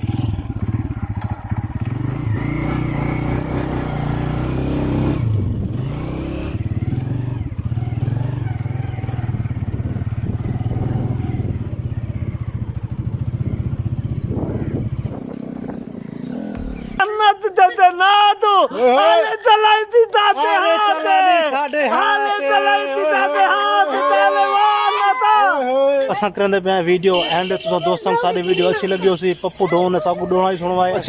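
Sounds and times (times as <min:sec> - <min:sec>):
vehicle engine chugging: 0:00.0 - 0:17.0.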